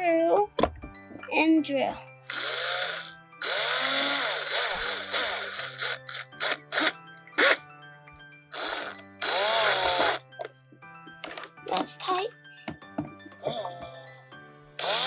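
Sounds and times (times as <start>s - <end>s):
background music: 0.0s - 15.0s
cordless drill motor whine: 2.3s - 7.6s, 8.5s - 10.2s, 14.8s - 15.0s.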